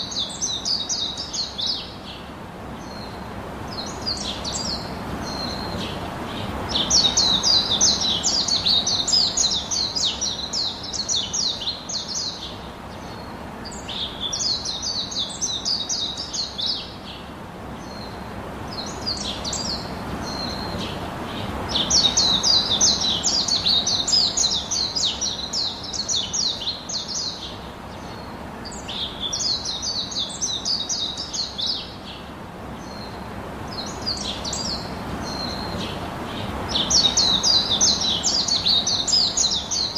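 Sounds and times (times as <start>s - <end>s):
steady low hiss: 0.0s - 39.9s
birds trilling: 32.8s - 39.9s.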